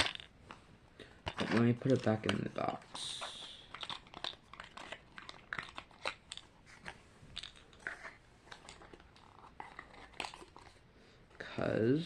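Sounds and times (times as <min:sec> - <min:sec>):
plastic toy parts clicking: 0:00.0 - 0:00.3, 0:01.2 - 0:03.0, 0:03.6 - 0:06.5.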